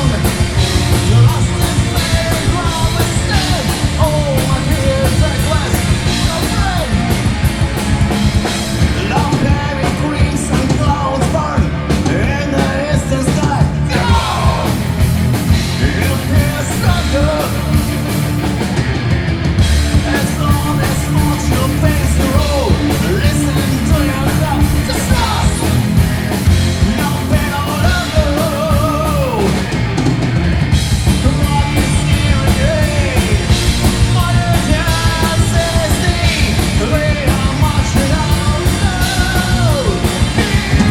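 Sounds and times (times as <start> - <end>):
person singing and shouting: 0.0 - 7.2, 8.6 - 14.8, 20.1 - 26.3, 31.1 - 40.9
rock band playing: 0.0 - 40.9.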